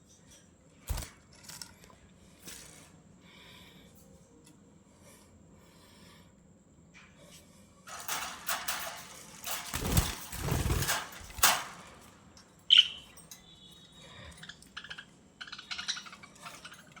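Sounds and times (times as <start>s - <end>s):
budgerigars chattering: 12.7s - 13.1s, 13.9s - 17.0s
budgerigars chirping: 12.7s - 13.2s, 14.4s - 17.0s
budgerigars whistling: 12.7s - 16.7s.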